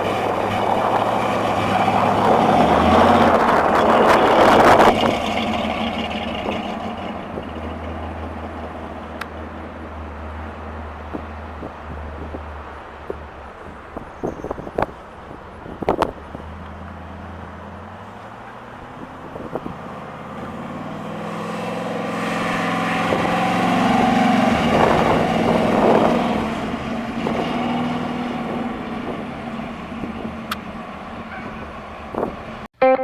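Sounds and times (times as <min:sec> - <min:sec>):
car engine running: 0:00.0 - 0:32.7.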